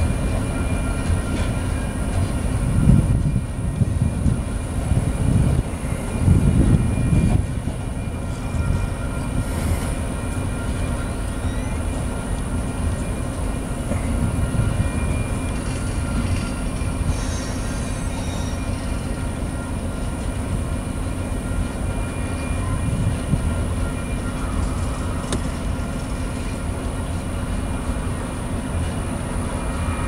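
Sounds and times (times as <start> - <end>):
high wheel squeal: 0.0 - 30.0
train wheels rumbling on rails: 0.0 - 30.0.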